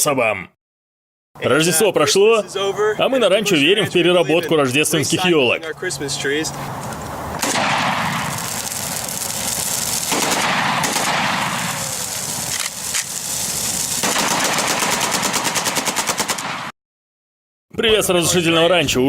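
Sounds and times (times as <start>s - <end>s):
firecrackers popping: 6.5s - 16.7s.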